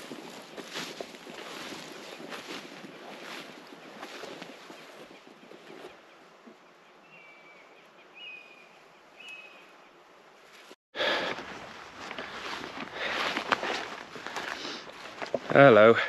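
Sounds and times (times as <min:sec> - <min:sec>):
footsteps: 0:00.0 - 0:06.0, 0:10.5 - 0:16.0.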